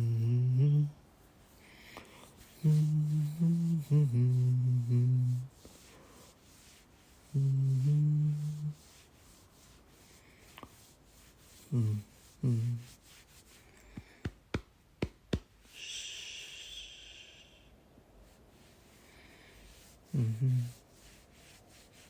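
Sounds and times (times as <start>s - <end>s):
man humming: 0.0s - 1.0s, 2.5s - 5.6s, 7.3s - 8.8s, 11.7s - 13.0s, 15.8s - 17.7s, 20.1s - 20.8s
breathy hiss: 0.0s - 14.2s, 15.6s - 22.0s.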